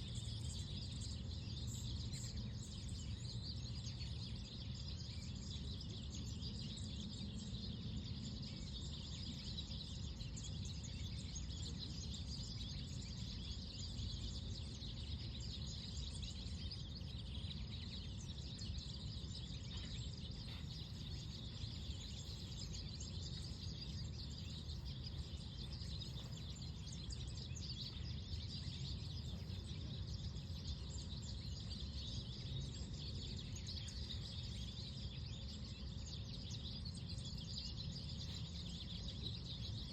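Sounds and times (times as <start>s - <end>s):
gentle wind rumble: 0.0s - 39.9s
songbirds chirping: 0.0s - 39.9s.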